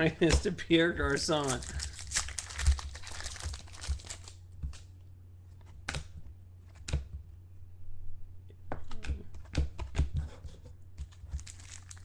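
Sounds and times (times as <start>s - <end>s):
wrappers crinkling and tearing: 1.2s - 4.8s, 11.2s - 12.0s.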